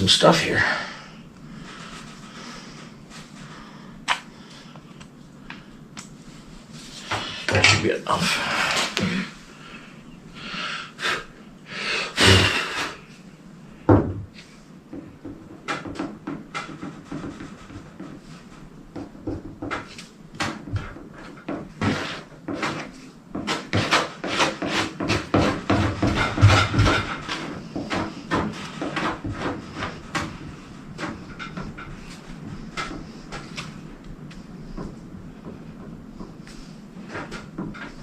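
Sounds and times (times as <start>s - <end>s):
knock: 13.9s - 14.3s.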